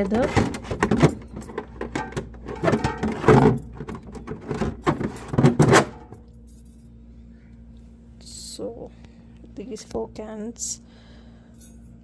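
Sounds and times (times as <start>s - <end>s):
plastic jugs and cardboard handled: 0.0s - 6.2s
low steady hum: 0.0s - 12.0s.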